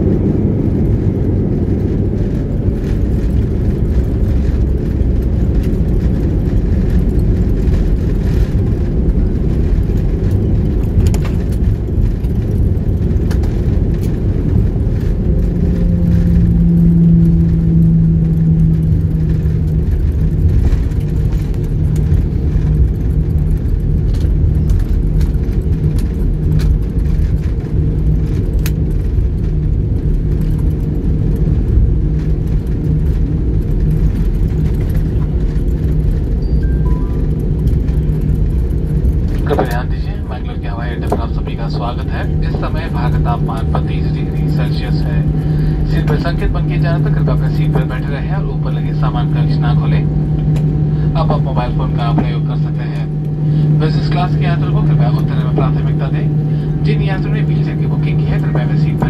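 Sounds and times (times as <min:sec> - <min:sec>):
aircraft engine rumble: 0:00.0 - 0:59.0
steady low hum: 0:00.0 - 0:59.0.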